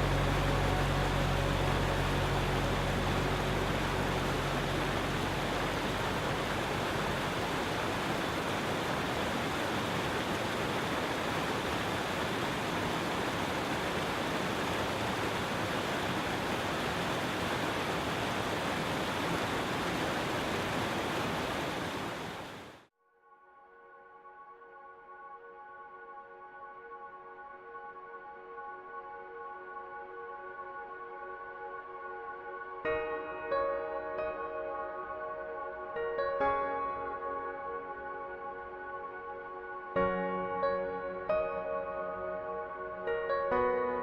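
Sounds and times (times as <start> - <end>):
low hum: 0.0 - 22.6
water rushing: 0.0 - 22.9.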